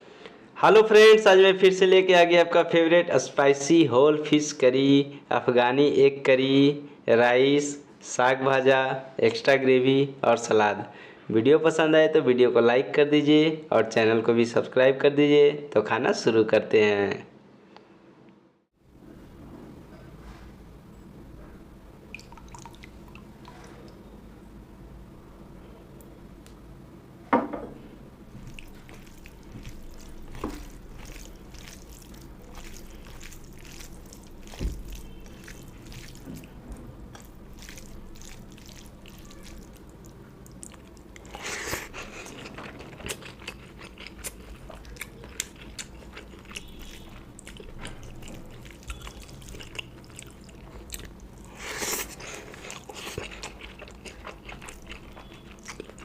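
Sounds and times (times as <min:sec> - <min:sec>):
wet chewing and smacking: 0:22.1 - 0:24.0, 0:28.3 - 0:56.0
crunchy bites: 0:28.4 - 0:56.0.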